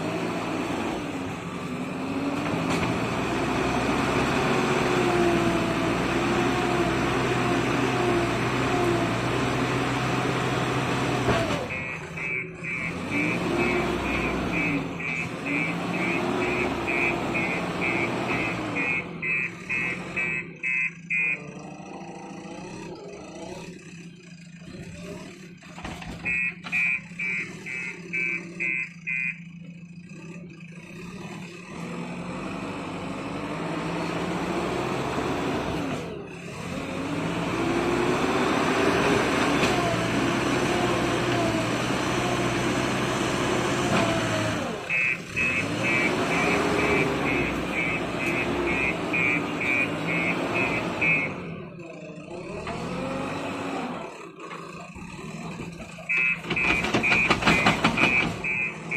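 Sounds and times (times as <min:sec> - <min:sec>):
bulldozer diesel engine running: 0:00.0 - 0:58.9
reversing alarm beeping: 0:11.6 - 0:22.0, 0:26.2 - 0:29.6, 0:44.9 - 0:51.6, 0:56.0 - 0:58.9.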